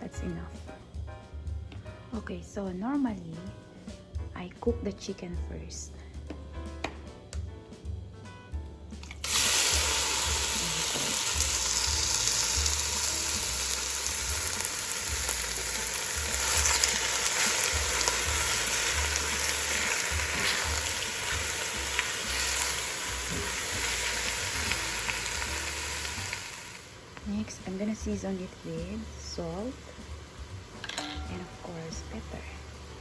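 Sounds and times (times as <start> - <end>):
chicken sizzling in oil: 9.1 - 33.0.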